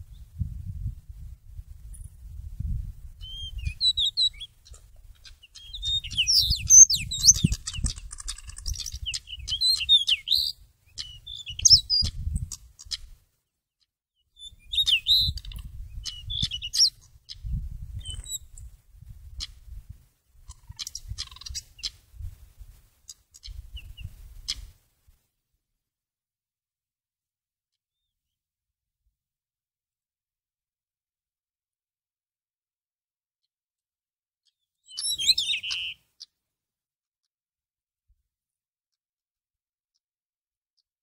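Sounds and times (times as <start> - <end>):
bird chirps whistles and clicks: 3.2 - 13.0, 14.4 - 18.6, 34.5 - 36.3.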